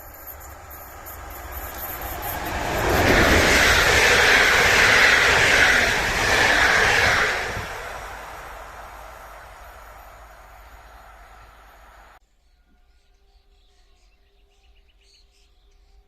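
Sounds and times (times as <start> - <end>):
train wheels rumbling on rails: 0.0 - 12.2.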